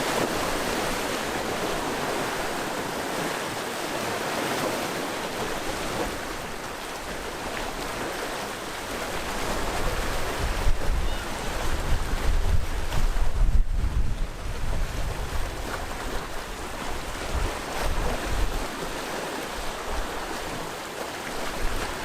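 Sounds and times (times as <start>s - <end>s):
sea waves breaking on shore: 0.0s - 22.0s
wind rumble on microphone: 8.9s - 20.6s.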